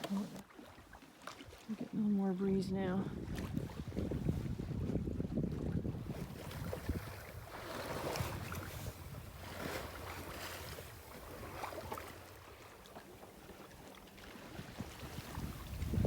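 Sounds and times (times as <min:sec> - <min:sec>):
water splashing along a hull: 0:00.0 - 0:16.0
wind noise: 0:02.8 - 0:12.6, 0:14.3 - 0:16.0.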